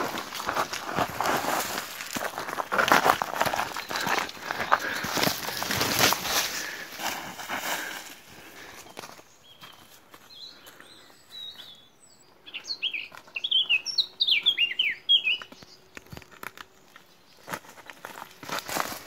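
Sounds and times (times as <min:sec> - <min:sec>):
twigs brushing: 0:00.0 - 0:08.2
footsteps on dirt trail: 0:00.0 - 0:19.0
songbird singing: 0:02.2 - 0:18.6.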